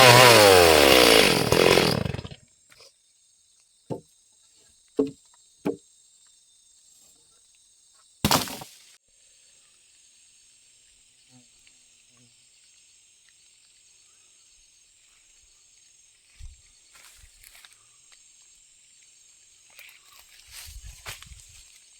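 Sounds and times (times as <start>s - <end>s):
insect chorus: 2.5s - 21.9s
dull thump: 5.0s - 5.8s
knocks and rustles: 5.0s - 5.8s.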